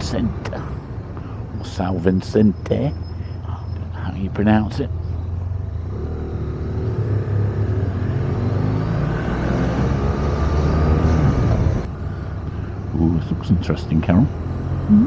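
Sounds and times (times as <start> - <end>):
wind and road noise: 0.0 - 15.0
motorcycle engine revving: 4.7 - 11.9.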